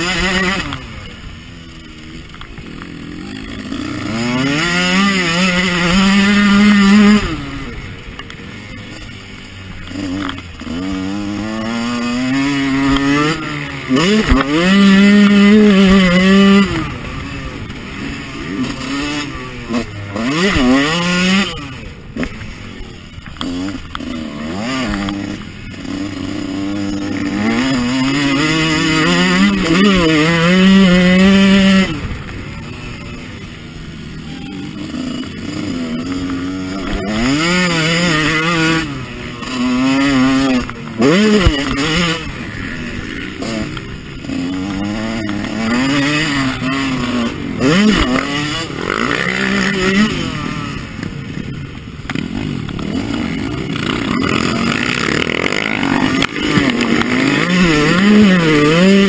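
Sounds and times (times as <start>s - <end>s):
motocross engine revving: 0.0s - 59.0s.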